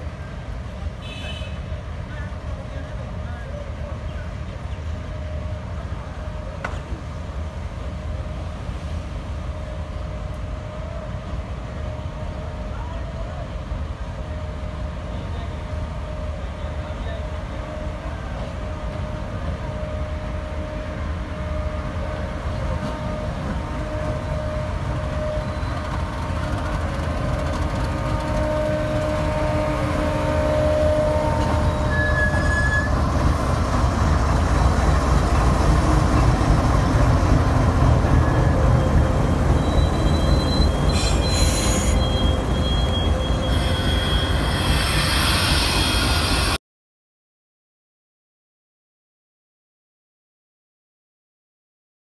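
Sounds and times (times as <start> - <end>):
train rumbling past: 0.0 - 46.6
train wheel squeal: 22.8 - 33.2, 34.4 - 36.3, 37.9 - 46.6.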